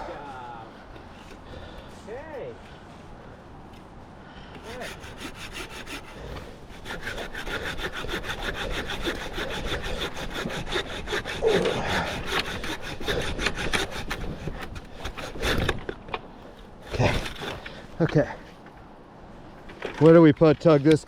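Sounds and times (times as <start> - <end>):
hand saw cutting log: 4.5 - 18.4.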